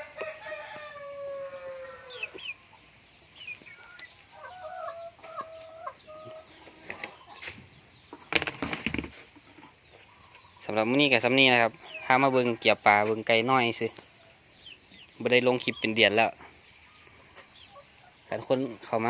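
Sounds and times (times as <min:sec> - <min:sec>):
rooster crowing: 0:00.0 - 0:02.6
chickens clucking: 0:00.0 - 0:19.0.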